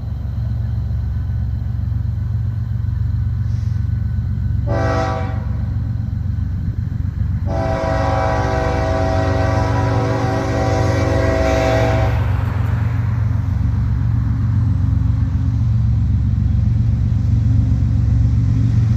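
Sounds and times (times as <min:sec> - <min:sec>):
diesel engines rumbling: 0:00.0 - 0:18.9
locomotive air horn blasts: 0:04.6 - 0:05.8, 0:07.4 - 0:12.7.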